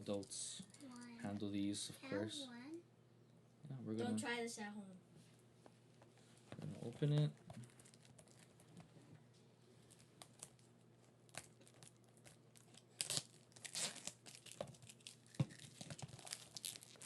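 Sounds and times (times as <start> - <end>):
wrapping tearing and crinkling: 6.8 - 8.8, 9.8 - 17.0.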